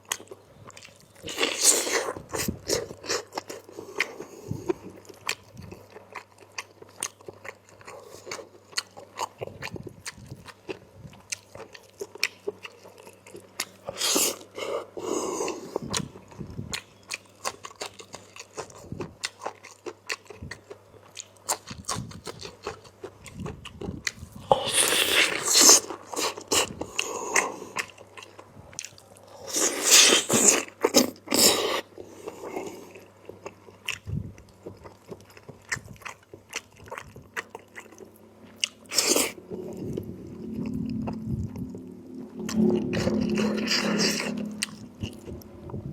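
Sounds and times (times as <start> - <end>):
wet chewing and mouth clicks: 15.4 - 40.1.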